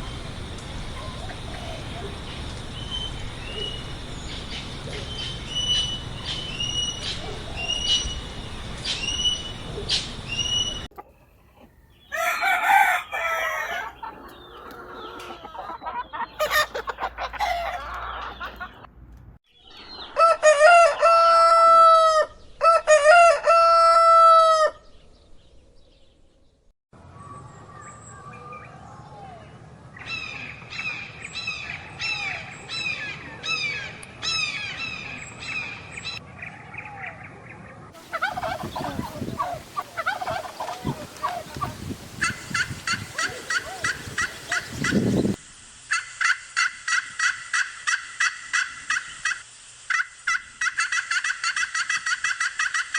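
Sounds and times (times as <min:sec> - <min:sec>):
chickens clucking: 0:00.0 - 0:18.9, 0:38.0 - 0:45.4
rooster crowing: 0:12.1 - 0:15.5, 0:20.2 - 0:24.8.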